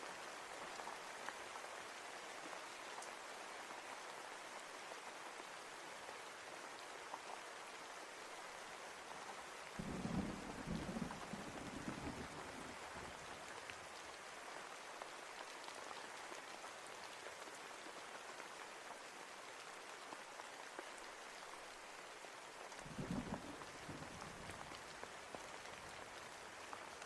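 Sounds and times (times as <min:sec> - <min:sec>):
steady rain falling: 0:00.0 - 0:27.0
low thunder rumble: 0:22.9 - 0:24.7.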